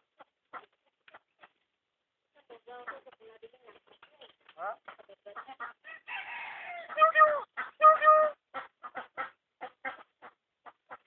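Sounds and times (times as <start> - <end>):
myna calling: 4.9 - 11.0.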